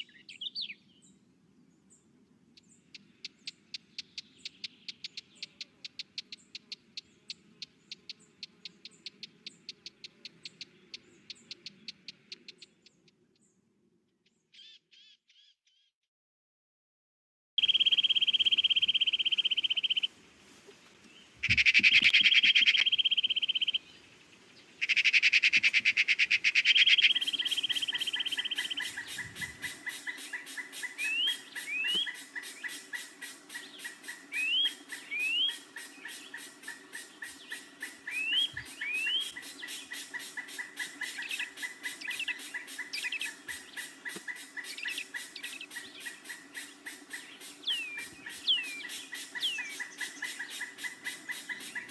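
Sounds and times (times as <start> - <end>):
fast ticking bird chorus: 2.6 - 13.4, 17.6 - 20.1, 21.4 - 23.8, 24.8 - 51.9
bird pulsed trill: 17.6 - 20.1, 26.6 - 51.9
short rising bird chirps: 26.7 - 51.9.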